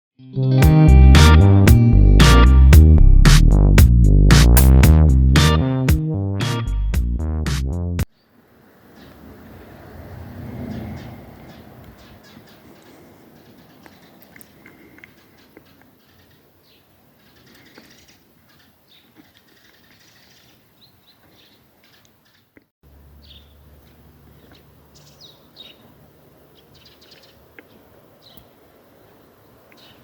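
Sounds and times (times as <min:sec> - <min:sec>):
small birds chirping: 0:08.1 - 0:30.0.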